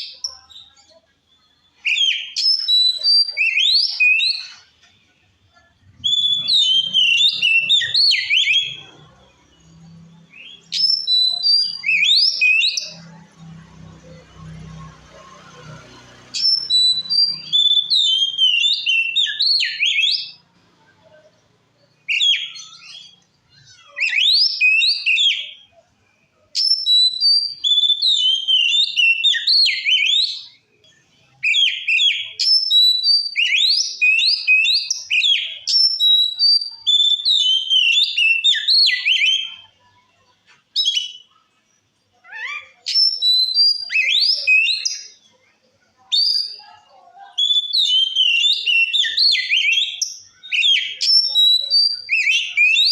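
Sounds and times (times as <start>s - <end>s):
bird singing whistled phrases: 0.0s - 4.7s, 6.0s - 13.0s, 16.4s - 20.4s, 22.0s - 25.7s, 26.6s - 30.6s, 31.4s - 39.8s, 40.8s - 41.4s, 42.4s - 45.2s, 46.1s - 52.9s.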